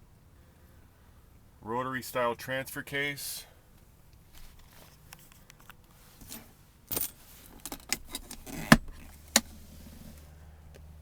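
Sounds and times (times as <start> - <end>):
handling clicks and rattles: 4.6 - 10.2.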